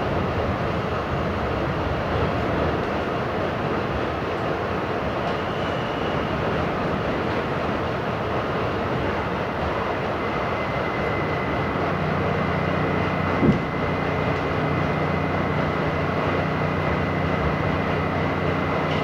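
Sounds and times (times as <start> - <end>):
subway train rumbling on rails: 0.0 - 19.0
high whine: 9.7 - 19.0
short clunk: 13.4 - 13.7.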